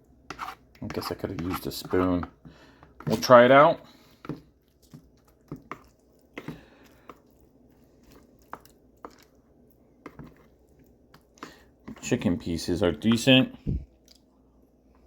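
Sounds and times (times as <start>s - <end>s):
person chewing food: 3.9s - 12.0s, 13.8s - 14.4s.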